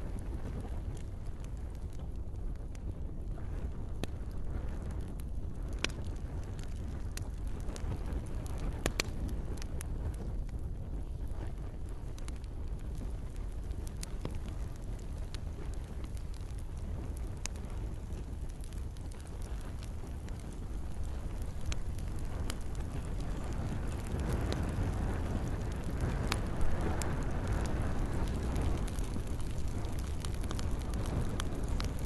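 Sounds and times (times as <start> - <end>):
campfire crackling and popping: 0.0 - 32.0
low rumble: 3.2 - 32.0
gentle rain hiss: 11.2 - 32.0.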